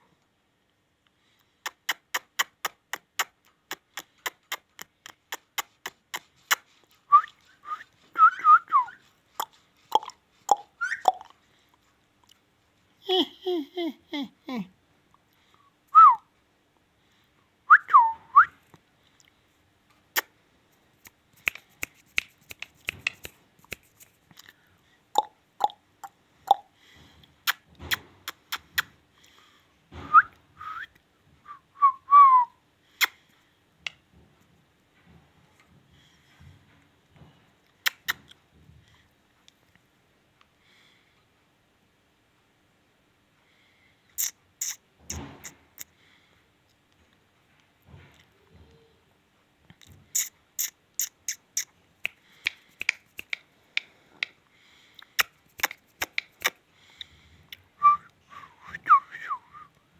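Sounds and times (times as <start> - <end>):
parakeet whistling: 10.5 - 11.2
parakeet clicking: 55.1 - 56.6.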